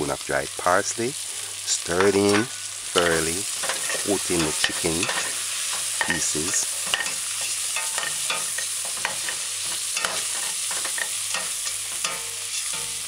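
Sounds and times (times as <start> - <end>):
food sizzling in a pot: 0.0 - 13.0
metal spoon scraping a pot: 2.0 - 13.0.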